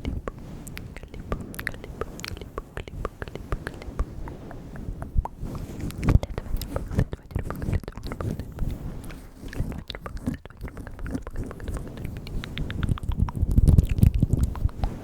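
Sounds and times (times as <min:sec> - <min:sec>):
wet mouth clicks and smacks: 0:04.7 - 0:08.7, 0:09.4 - 0:14.9.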